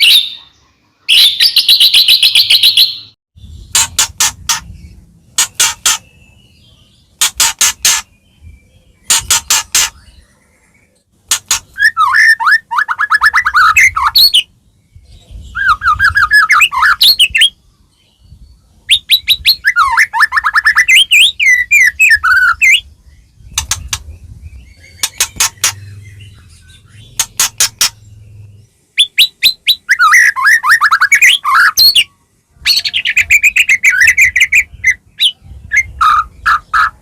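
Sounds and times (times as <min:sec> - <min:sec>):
bird singing: 0:00.0 - 0:37.0
sharp clicking bird notes: 0:03.7 - 0:04.7, 0:05.3 - 0:06.2, 0:07.2 - 0:08.2, 0:09.0 - 0:10.0, 0:11.3 - 0:12.3, 0:23.5 - 0:24.2, 0:24.9 - 0:26.2, 0:26.9 - 0:28.1.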